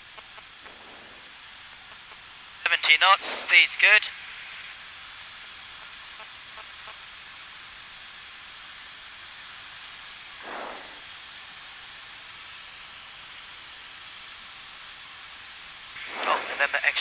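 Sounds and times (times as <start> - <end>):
cockpit audio hiss: 0.0 - 17.0
short rush of noise: 10.4 - 11.2, 16.0 - 17.0.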